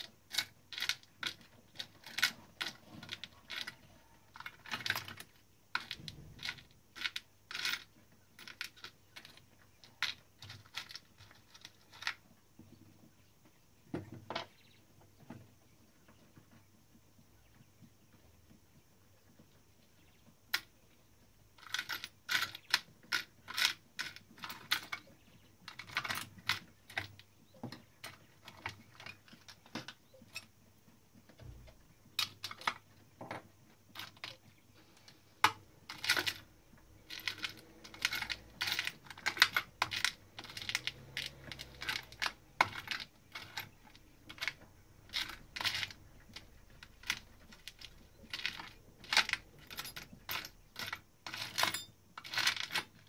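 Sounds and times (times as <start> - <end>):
typewriter mechanism clicks: 37.1 - 53.0.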